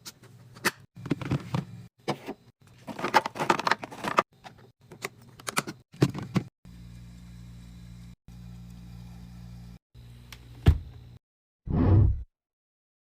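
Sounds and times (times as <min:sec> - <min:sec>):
items being set down: 0:01.0 - 0:06.5.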